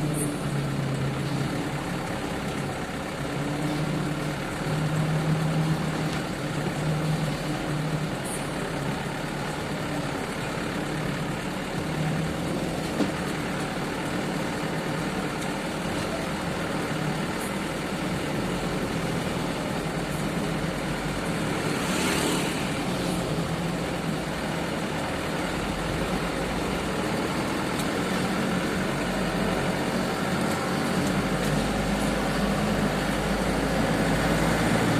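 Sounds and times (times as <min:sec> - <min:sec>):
truck engine rumbling: 0:00.0 - 0:34.9.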